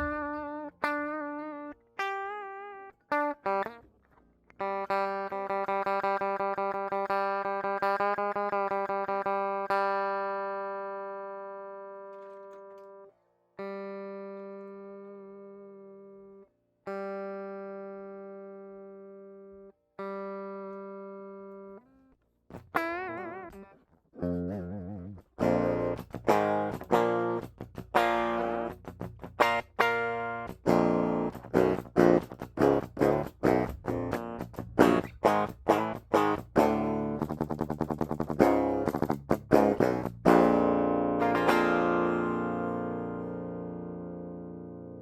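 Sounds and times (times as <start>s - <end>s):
guitar note with vibrato: 0.0s - 1.3s
electric guitar note ringing: 0.0s - 3.2s
fast low guitar riffing: 0.0s - 3.7s, 22.6s - 45.0s.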